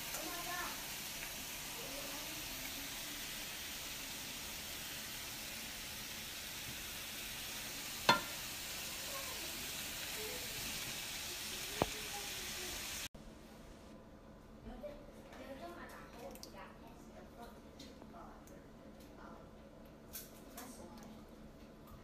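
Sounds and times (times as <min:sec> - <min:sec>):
meat and vegetables sizzling in a pan: 0:00.0 - 0:13.1.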